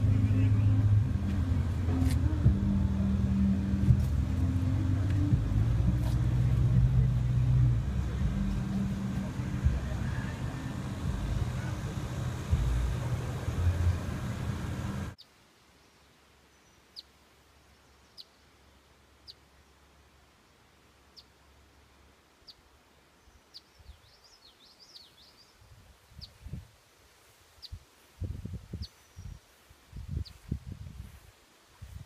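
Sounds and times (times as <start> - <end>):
loud street noise: 0.0 - 15.2
low bumps: 0.0 - 15.2.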